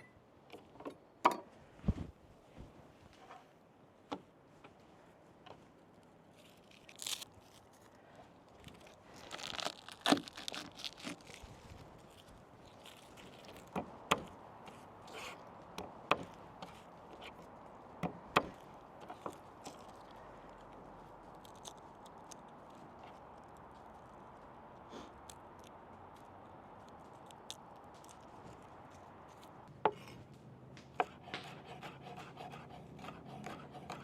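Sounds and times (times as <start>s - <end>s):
rustling and tearing: 5.7s - 30.5s.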